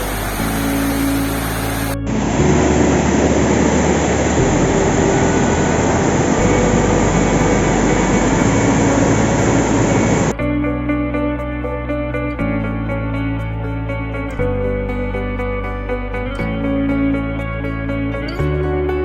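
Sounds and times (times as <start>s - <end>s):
waterfall roaring: 0.0s - 10.4s.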